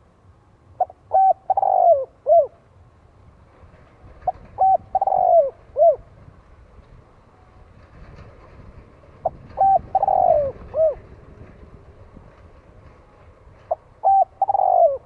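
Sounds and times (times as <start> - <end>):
dove cooing: 0.8 - 2.6, 4.2 - 6.1, 9.2 - 11.2, 13.7 - 15.0.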